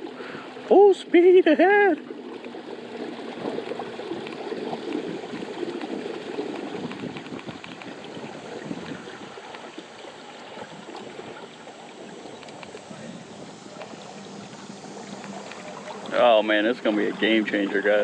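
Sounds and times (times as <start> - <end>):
water rushing along a hull: 0.0 - 18.0.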